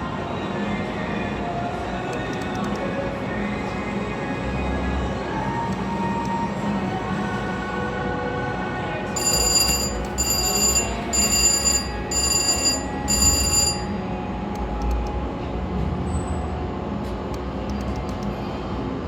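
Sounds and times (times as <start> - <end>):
background din: 9.2 - 14.0
bell-like chime: 9.2 - 14.0.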